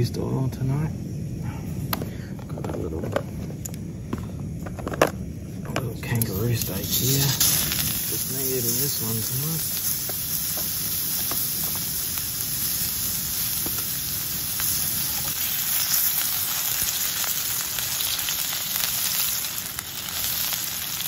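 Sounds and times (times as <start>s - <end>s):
patty sizzling in a pan: 6.0s - 21.0s.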